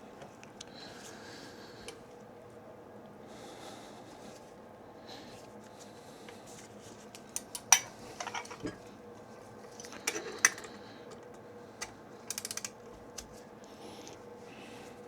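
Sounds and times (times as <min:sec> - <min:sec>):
metal tools clicking and clanking: 0:07.6 - 0:08.8, 0:09.7 - 0:11.3
ratchet clicks: 0:12.3 - 0:12.8.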